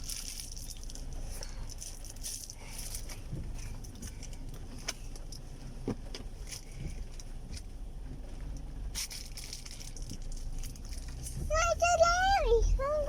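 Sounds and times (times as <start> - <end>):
light clicks and rattles: 0.0 - 13.0
road and engine rumble: 0.0 - 13.0.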